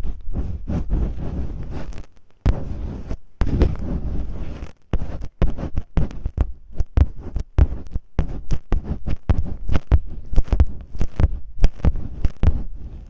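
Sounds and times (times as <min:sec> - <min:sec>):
masking tape crinkling on microphone: 0:00.0 - 0:13.0
deep muffled thumps: 0:02.5 - 0:12.9.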